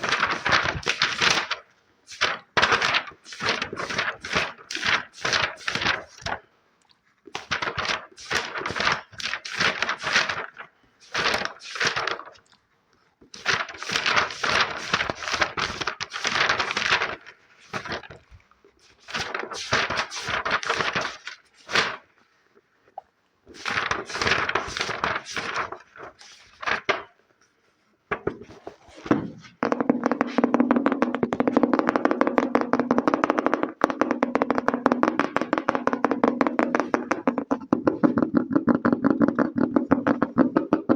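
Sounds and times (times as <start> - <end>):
fingers tapping and scratching: 29.3 - 40.9.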